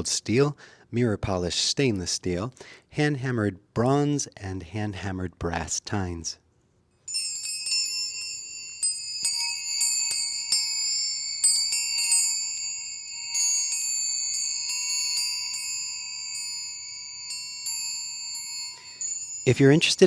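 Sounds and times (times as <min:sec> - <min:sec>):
brass tines chiming: 0:07.1 - 0:20.0.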